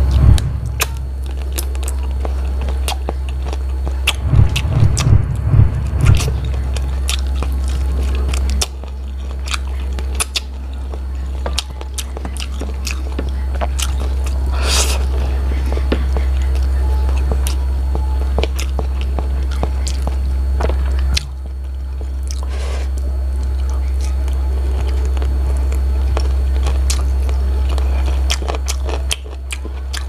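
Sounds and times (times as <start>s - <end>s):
low thumps: 0.0s - 1.2s, 4.2s - 7.0s
steady low hum: 0.0s - 30.0s
biting and chewing: 0.6s - 5.2s, 5.9s - 30.0s.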